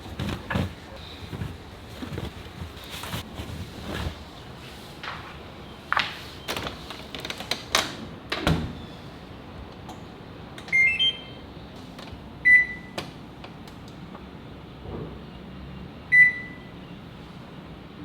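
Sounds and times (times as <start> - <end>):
knocks and clatter of handling: 0.0 - 4.3
washing machine panel beeping: 10.7 - 11.4, 12.4 - 13.0, 16.1 - 16.7.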